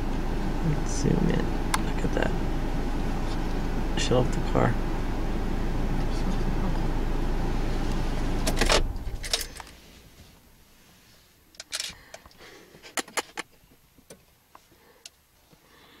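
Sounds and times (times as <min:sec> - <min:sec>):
car engine switching off: 0:00.0 - 0:10.6
short rattle: 0:08.4 - 0:09.8.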